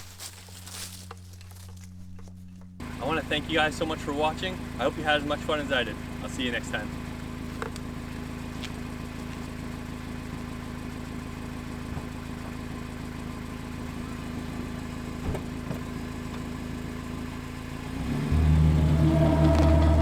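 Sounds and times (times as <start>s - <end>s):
engine idling: 1.1s - 20.0s.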